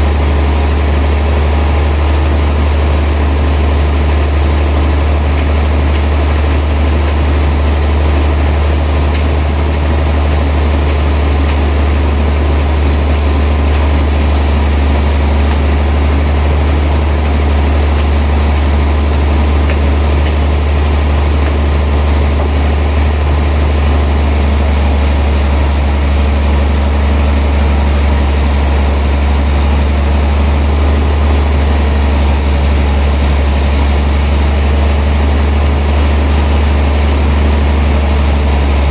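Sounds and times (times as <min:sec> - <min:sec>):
sawmill machinery drone: 0:00.0 - 0:38.9.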